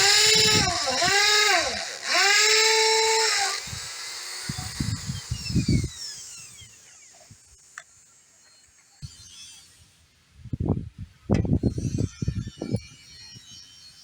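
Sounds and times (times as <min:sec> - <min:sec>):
electric power tool motor: 0:00.0 - 0:07.8.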